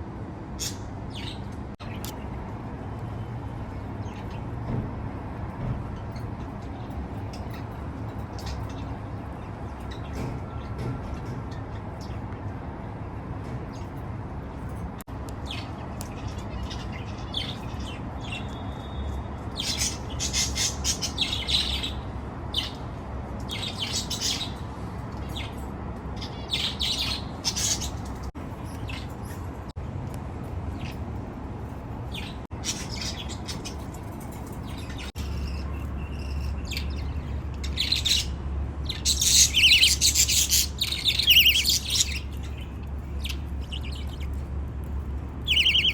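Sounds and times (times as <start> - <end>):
baby budgerigars chirping: 0.6 - 2.2, 15.3 - 29.4, 32.1 - 45.9.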